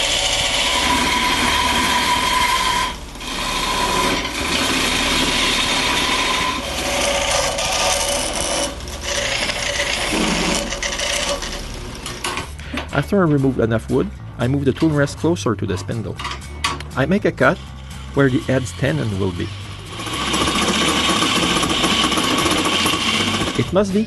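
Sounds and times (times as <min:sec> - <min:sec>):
lathe motor humming: 0:00.0 - 0:12.4, 0:17.6 - 0:24.0
lathe tool shaving wood: 0:00.0 - 0:12.5, 0:17.1 - 0:24.0.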